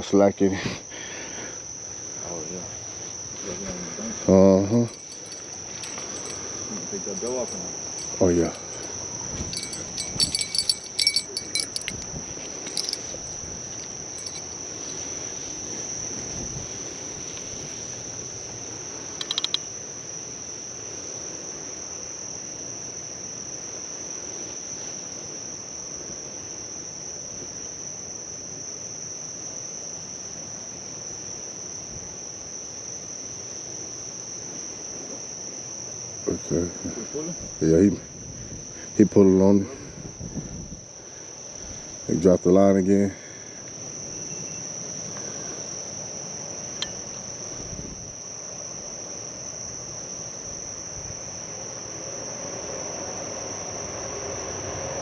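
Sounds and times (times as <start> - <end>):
crickets chirping: 0.0 - 55.0
bell jingling on fishing rod: 4.6 - 15.1, 19.2 - 19.6.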